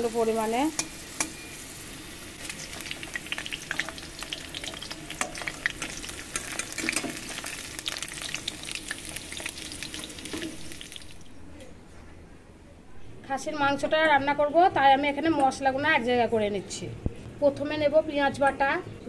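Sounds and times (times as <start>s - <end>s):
potatoes sizzling in oil: 0.0s - 11.3s.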